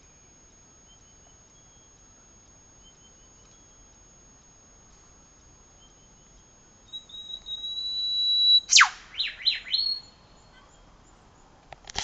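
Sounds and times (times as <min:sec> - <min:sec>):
bird whistle and whip-crack call: 0:07.3 - 0:10.0.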